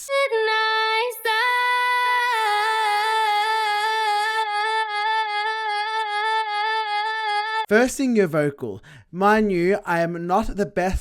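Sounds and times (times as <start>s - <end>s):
processed woman singing high note: 0.0s - 7.7s.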